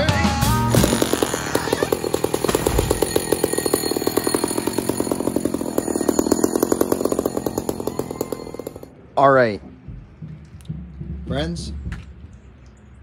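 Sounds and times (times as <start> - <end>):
chainsaw idling: 0.7 - 8.9.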